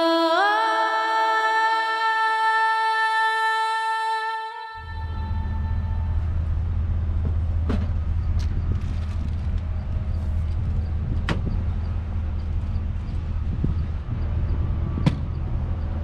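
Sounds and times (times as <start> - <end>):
low engine-like rumble: 4.8 - 16.0.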